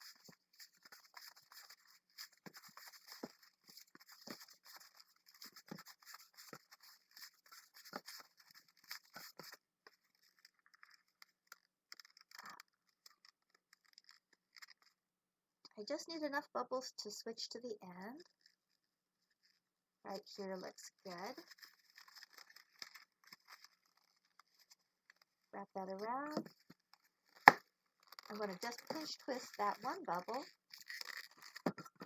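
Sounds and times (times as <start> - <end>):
balloon rubbing and squeaking: 0.0 - 9.5, 27.3 - 32.0.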